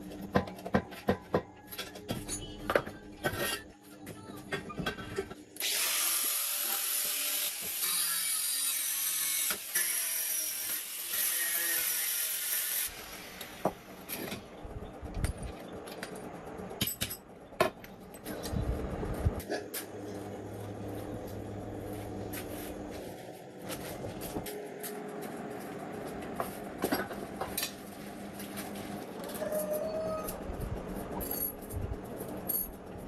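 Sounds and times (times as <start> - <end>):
power tool harsh hiss: 5.6 - 13.6.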